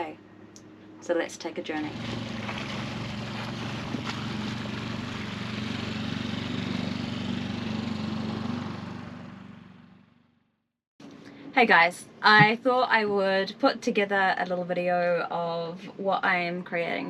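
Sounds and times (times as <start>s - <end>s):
engine running: 0.0s - 11.5s.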